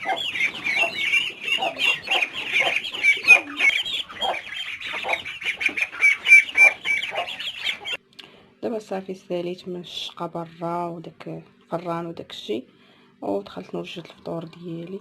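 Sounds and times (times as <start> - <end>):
hens clucking: 0.0 - 8.0.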